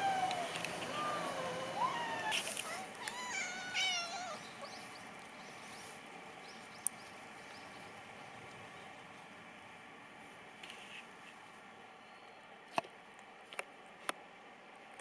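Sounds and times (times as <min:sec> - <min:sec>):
cat meowing: 0:00.0 - 0:04.7.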